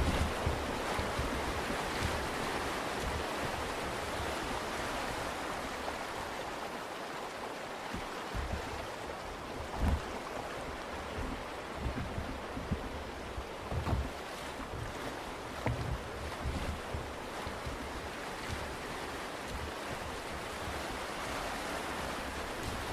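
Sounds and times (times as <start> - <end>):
wind thumps on microphone: 0.0 - 4.4, 7.9 - 21.0
river rapids rushing: 0.0 - 22.9.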